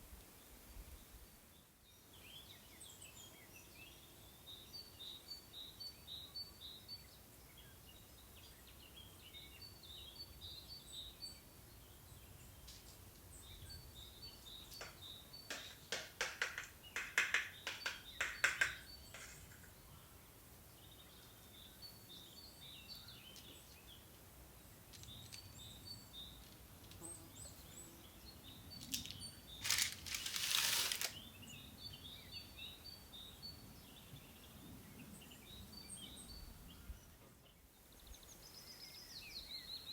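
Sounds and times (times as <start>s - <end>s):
small birds chirping: 0.4s - 39.9s
sharp clicks and knocks: 14.7s - 19.7s.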